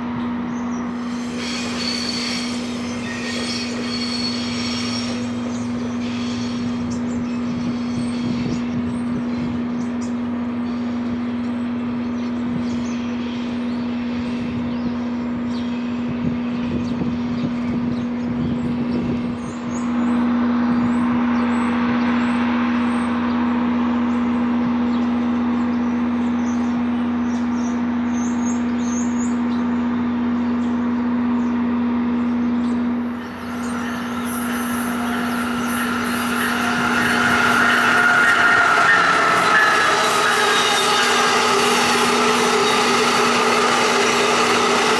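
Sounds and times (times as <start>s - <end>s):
train electrical hum: 0.0s - 20.8s, 32.9s - 44.9s
birds chirping: 33.0s - 44.9s
rush of noise: 33.1s - 44.9s.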